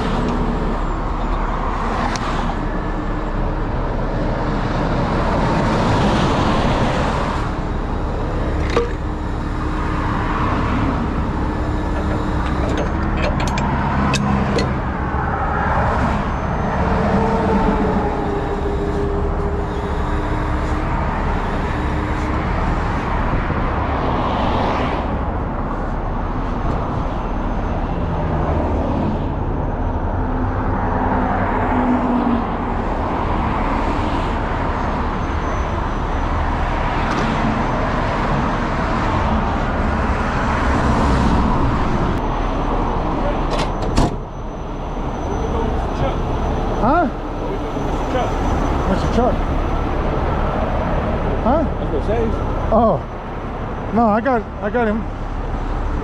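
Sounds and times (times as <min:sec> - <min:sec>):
vehicle engine and traffic rumble: 0:00.0 - 0:56.0.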